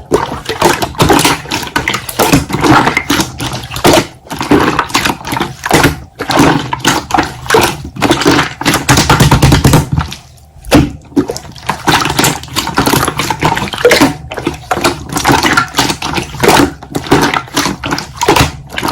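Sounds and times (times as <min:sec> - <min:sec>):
slime squelching and popping: 0:00.0 - 0:18.9
dull thuds of pressed slime: 0:05.7 - 0:12.7.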